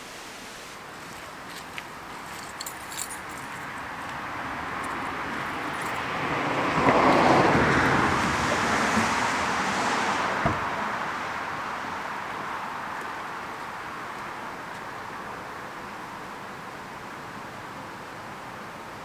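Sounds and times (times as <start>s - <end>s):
car driving past: 4.4s - 12.7s.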